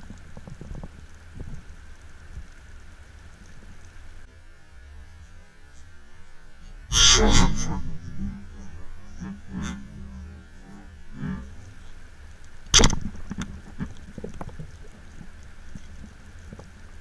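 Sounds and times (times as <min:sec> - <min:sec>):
faint clicks and crackles: 0:00.0 - 0:17.0
low underwater hum: 0:00.0 - 0:17.0
sharp knock: 0:12.8 - 0:13.0.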